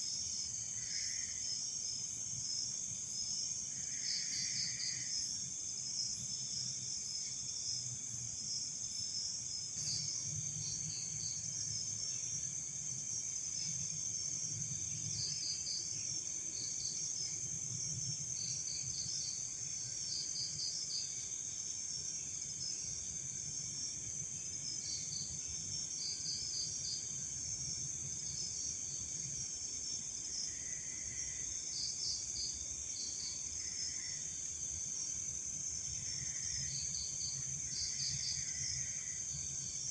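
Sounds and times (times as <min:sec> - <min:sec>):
crickets chirping: 0:00.0 - 0:39.9
insects trilling: 0:08.4 - 0:39.9.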